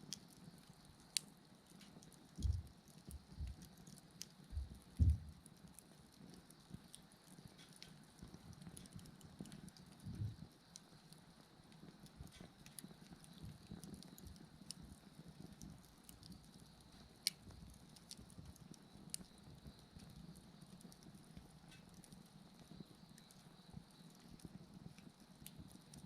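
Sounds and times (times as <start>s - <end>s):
low flame rumble: 0.0s - 26.0s
wood bonfire crackling: 0.0s - 26.0s
sharp fire pops: 1.0s - 11.1s.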